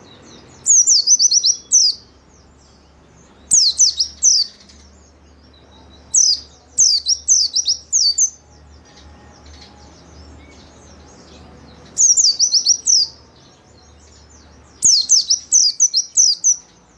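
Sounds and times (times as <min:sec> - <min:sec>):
bird high falling chirps: 0:03.3 - 0:04.9, 0:14.7 - 0:16.8.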